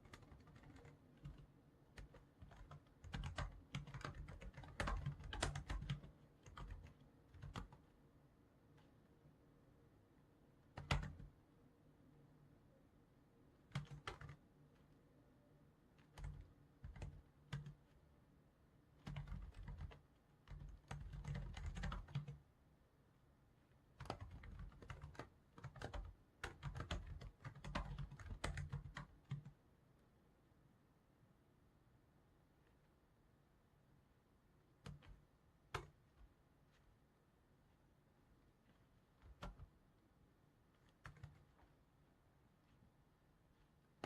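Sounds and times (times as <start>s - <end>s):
typing on computer keyboard: 0.0s - 7.9s, 10.7s - 11.3s, 13.7s - 14.4s, 16.0s - 17.9s, 19.0s - 22.4s, 24.0s - 29.6s, 34.8s - 36.1s, 39.2s - 39.7s, 40.8s - 41.6s.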